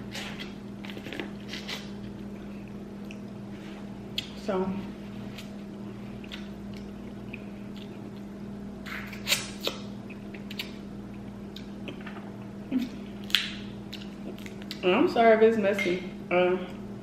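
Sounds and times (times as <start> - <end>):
steady low hum: 0.0 - 17.0
wet mouth eating sounds: 5.4 - 14.8.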